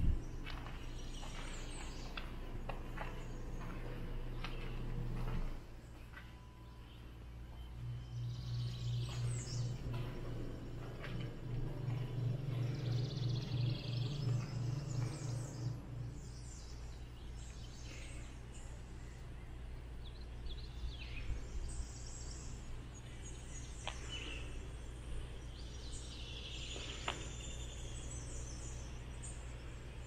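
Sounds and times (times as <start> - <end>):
bird chirps and twitters: 0.0 - 30.0
low background hum: 0.0 - 30.0
pulsing low throb: 6.6 - 17.5.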